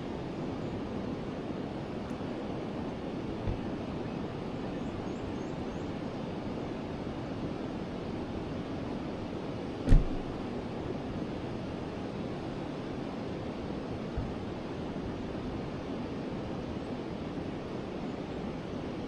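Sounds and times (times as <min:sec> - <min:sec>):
sharp low thump: 0:03.4 - 0:03.7, 0:09.9 - 0:10.4.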